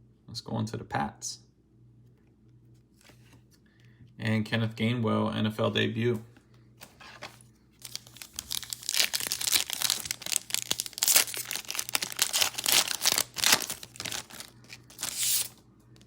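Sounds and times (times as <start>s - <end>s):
foil ripping: 7.8s - 15.6s
foil wrapper crinkling: 7.8s - 15.6s.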